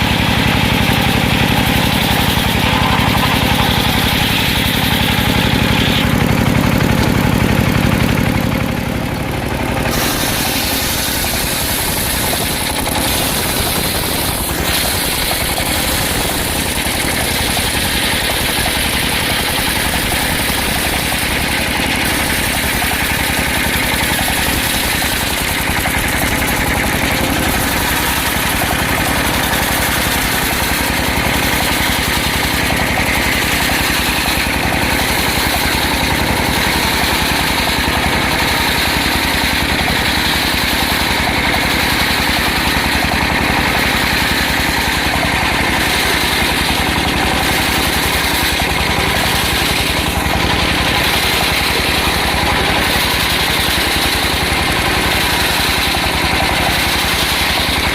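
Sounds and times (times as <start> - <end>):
circular sawmill running: 0.0 - 57.9.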